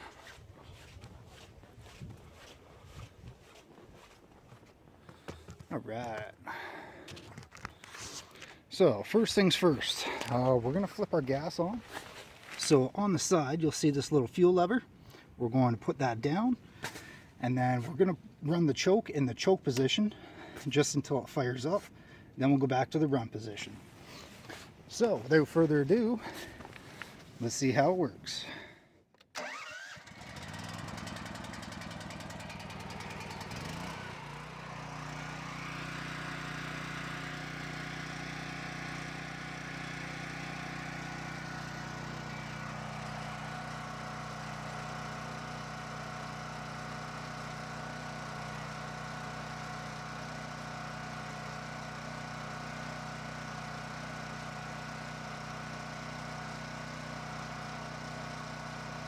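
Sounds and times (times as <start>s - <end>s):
generator engine running: 5.0s - 14.8s, 29.4s - 59.0s.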